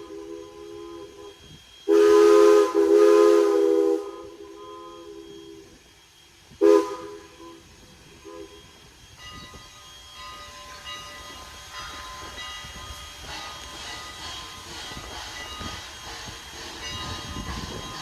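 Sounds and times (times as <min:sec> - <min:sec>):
steam locomotive whistle toot: 0:00.0 - 0:18.0
train running noise: 0:00.0 - 0:18.0.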